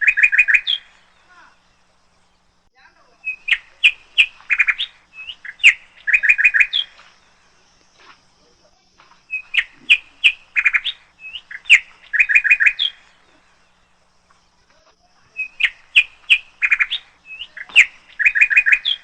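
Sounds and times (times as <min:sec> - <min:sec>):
bird chirps and whistles: 0:00.0 - 0:01.4, 0:03.2 - 0:07.0, 0:09.3 - 0:13.5, 0:15.2 - 0:19.0.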